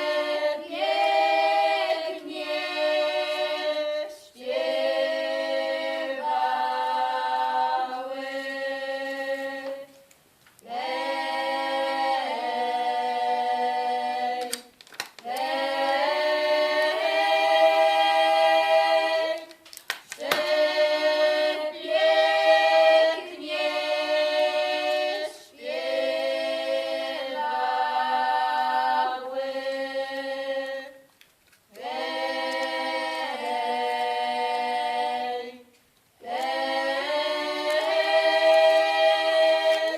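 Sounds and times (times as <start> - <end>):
choir singing a cappella: 0.0 - 10.0, 10.6 - 19.6, 20.2 - 31.1, 31.7 - 39.9.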